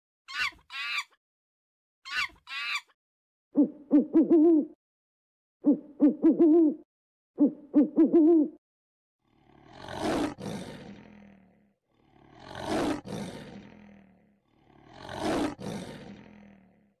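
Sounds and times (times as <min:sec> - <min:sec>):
lion roaring: 0:09.3 - 0:17.0.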